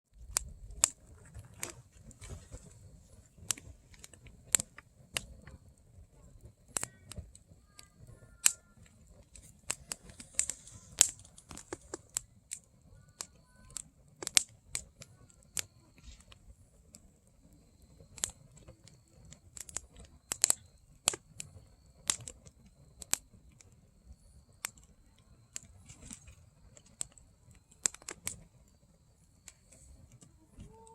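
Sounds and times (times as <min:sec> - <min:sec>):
firewood crackling and popping: 0:00.1 - 0:30.9.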